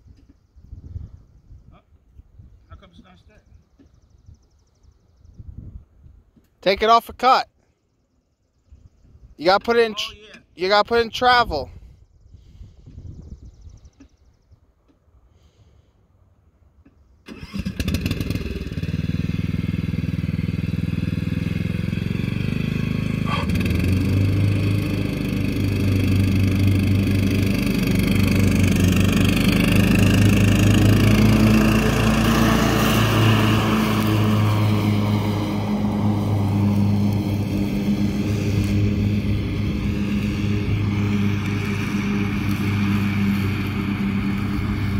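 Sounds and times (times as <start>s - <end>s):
lawn mower engine running: 17.3s - 44.9s.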